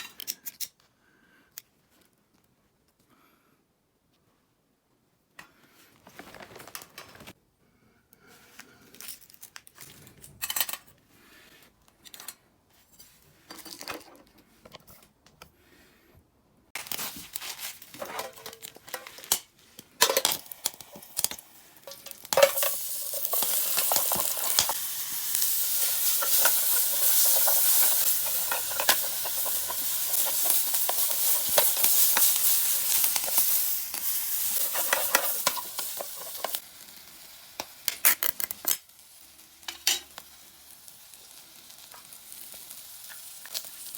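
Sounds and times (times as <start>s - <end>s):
food sizzling in a tin: 20.2s - 43.9s.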